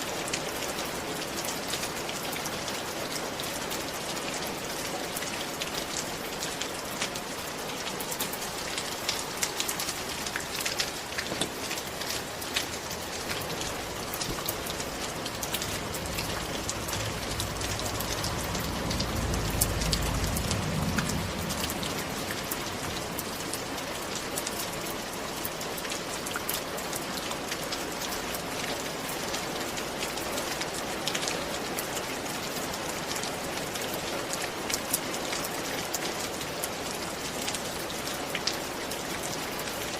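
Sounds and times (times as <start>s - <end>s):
steady rain falling: 0.0s - 39.9s
low rumble: 14.5s - 23.5s.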